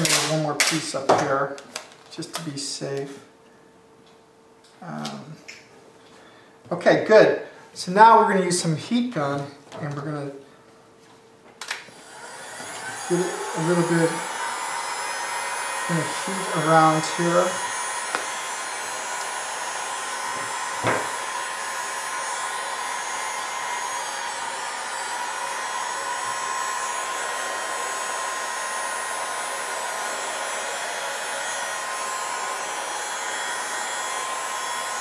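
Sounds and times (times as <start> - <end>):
heat gun blowing: 11.9 - 35.0.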